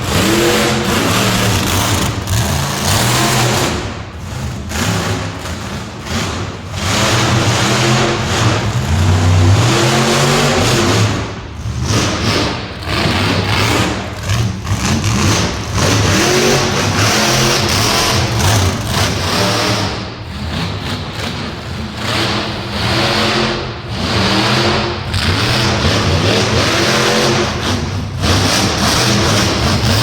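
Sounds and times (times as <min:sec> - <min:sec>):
monster truck engine revving: 0:00.0 - 0:30.0.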